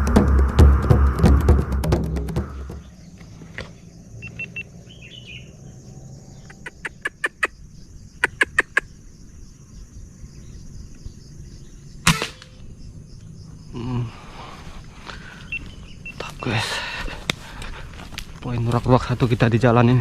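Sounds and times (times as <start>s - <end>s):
air rifle shot: 12.0s - 12.6s.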